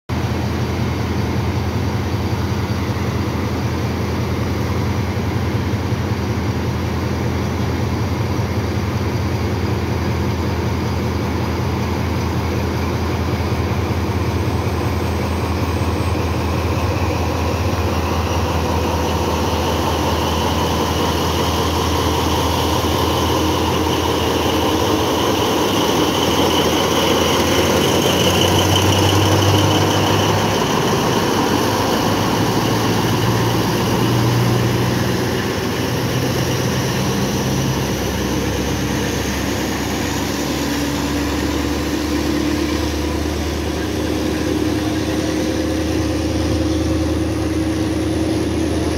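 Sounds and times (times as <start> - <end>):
diesel locomotive hum: 0.1 - 48.9
rising whine: 10.4 - 48.9.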